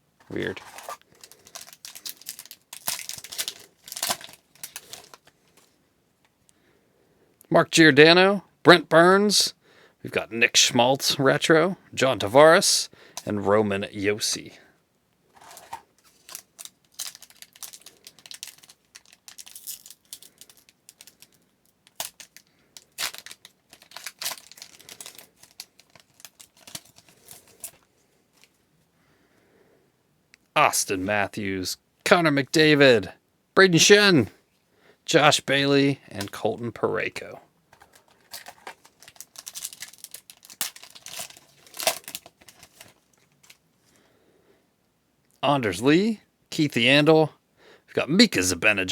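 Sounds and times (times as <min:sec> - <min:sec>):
wrapper crinkling and tearing: 0:00.4 - 0:05.4, 0:15.4 - 0:27.8, 0:37.8 - 0:43.6.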